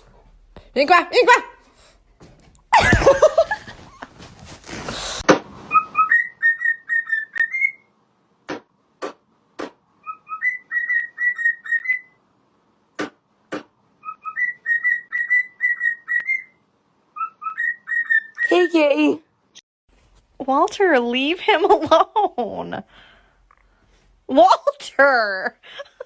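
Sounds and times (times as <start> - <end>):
whistled phrase with chirps: 5.7 - 7.9, 10.0 - 12.2, 17.2 - 18.8.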